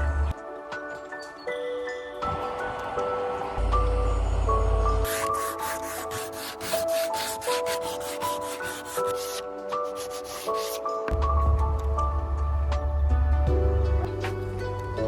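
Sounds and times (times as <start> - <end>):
rapid scraping strokes: 5.0 - 10.8
soft mallet percussion music: 9.6 - 15.0.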